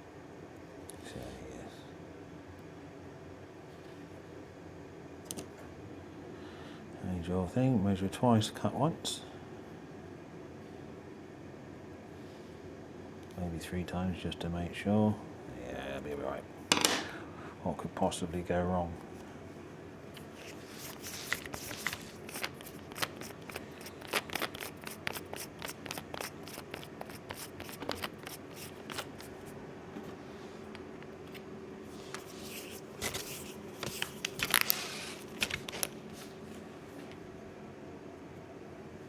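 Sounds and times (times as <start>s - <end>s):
scraping strokes: 20.3s - 29.5s, 31.9s - 35.2s.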